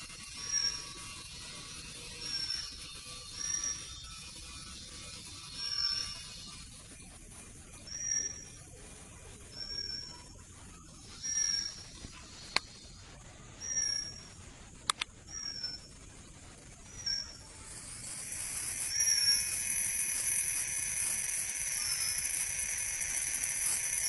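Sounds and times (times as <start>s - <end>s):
bird whistled call: 13.6s - 14.3s, 16.9s - 24.0s
sharp clicks: 14.8s - 15.7s, 18.0s - 24.0s
hiss: 16.9s - 24.0s.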